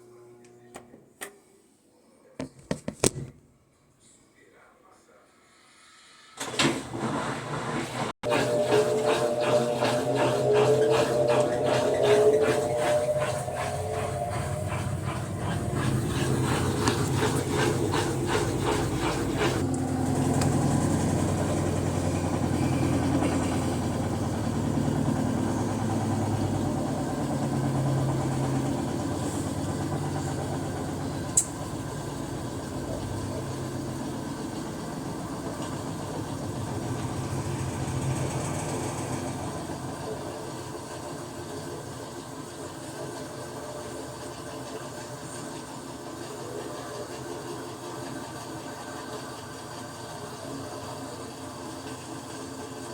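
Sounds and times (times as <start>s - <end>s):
washing machine humming: 6.4s - 52.9s
washing machine knocking: 6.6s - 40.8s.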